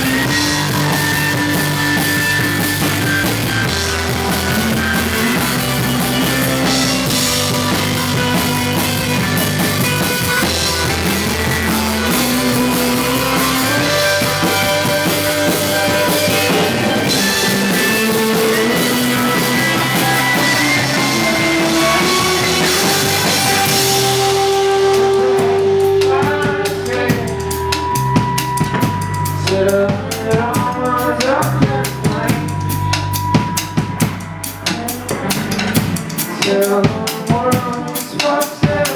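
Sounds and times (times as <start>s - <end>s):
held guitar notes: 0.0s - 29.5s
drums: 0.0s - 38.9s
rock band playing: 0.0s - 38.9s.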